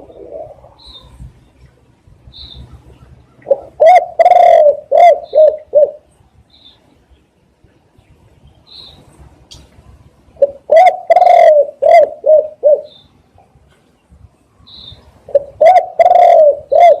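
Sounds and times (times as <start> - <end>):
dove cooing: 0.0 - 1.2, 3.3 - 6.1, 10.4 - 13.0, 15.3 - 17.0.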